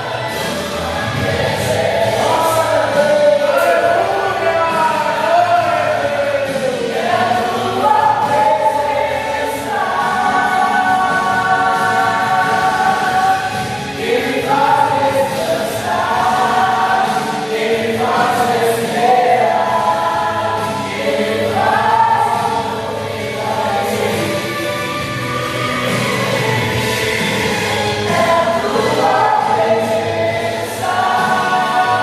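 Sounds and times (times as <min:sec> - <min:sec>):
choir singing a hymn: 0:00.0 - 0:32.0.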